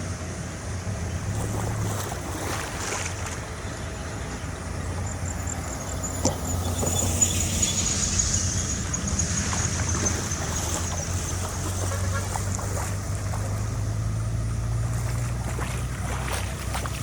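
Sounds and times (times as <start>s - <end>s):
engine running steadily: 0.0s - 17.0s
high pulsing tone: 4.0s - 11.8s.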